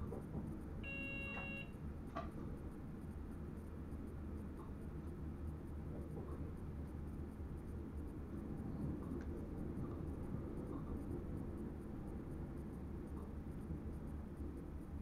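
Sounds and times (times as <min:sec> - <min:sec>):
electric train rumbling: 0:00.0 - 0:15.0
faint ticks: 0:02.1 - 0:15.0.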